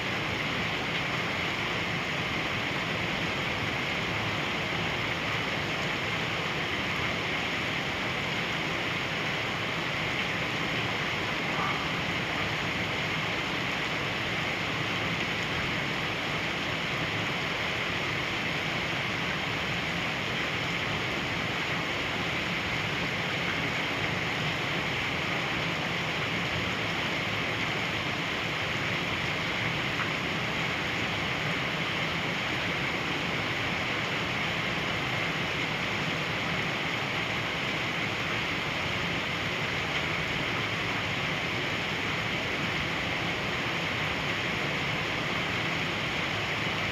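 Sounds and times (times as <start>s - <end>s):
heavy rain in strong wind: 0.0s - 46.9s.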